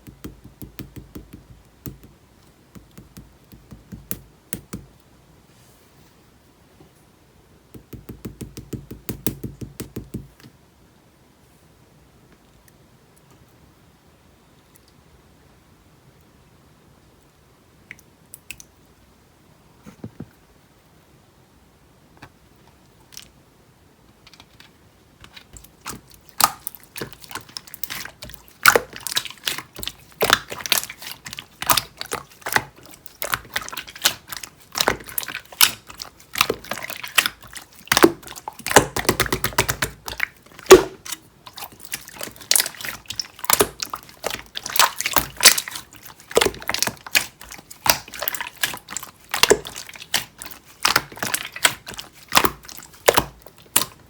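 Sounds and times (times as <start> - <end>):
slime squished by hand: 25.6 - 54.0.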